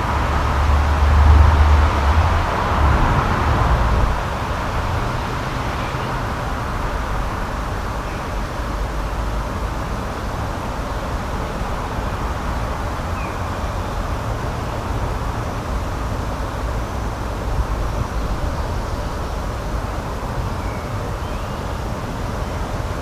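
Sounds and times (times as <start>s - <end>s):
outdoor rushing noise: 0.0s - 7.6s.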